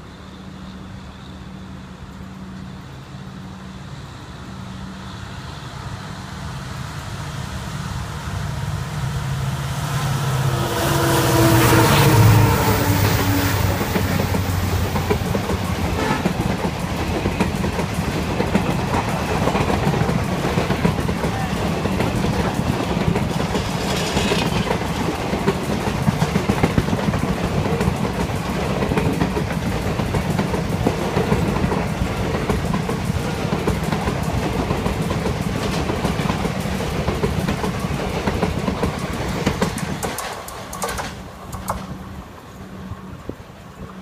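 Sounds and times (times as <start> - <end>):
trains rolling roar: 0.0 - 44.0
wheels clattering over rails: 12.4 - 42.0.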